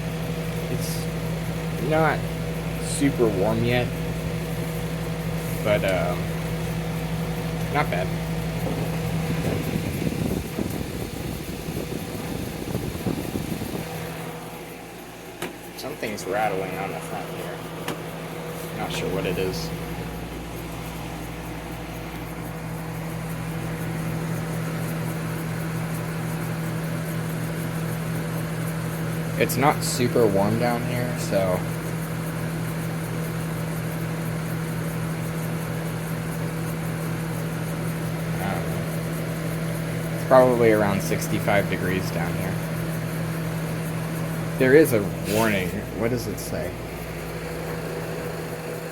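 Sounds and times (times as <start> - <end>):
dehumidifier humming: 0.0 - 48.9
low rumbling and rattling: 4.0 - 23.9.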